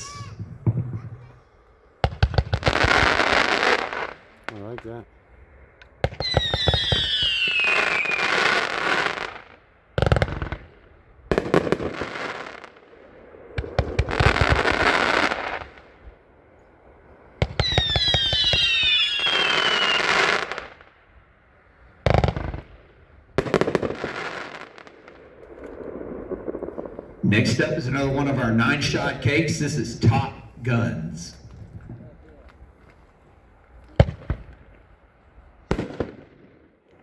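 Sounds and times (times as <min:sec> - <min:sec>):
fireworks launches and bursts: 0:00.0 - 0:04.7, 0:06.0 - 0:16.1, 0:17.4 - 0:21.0, 0:22.1 - 0:31.3, 0:34.0 - 0:34.7, 0:35.6 - 0:36.8
firework whistles falling in pitch: 0:06.2 - 0:08.5, 0:17.6 - 0:20.4.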